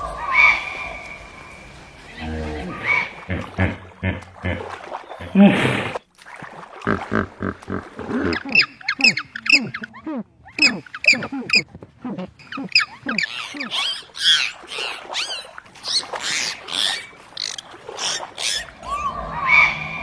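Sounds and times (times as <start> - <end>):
short high animal calls: 7.7 - 17.5.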